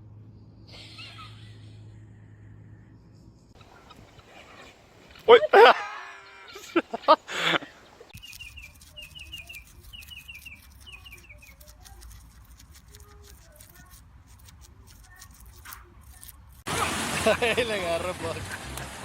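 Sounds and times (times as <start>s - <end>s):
low hum: 0.0s - 5.2s
bird chirping: 3.0s - 12.3s.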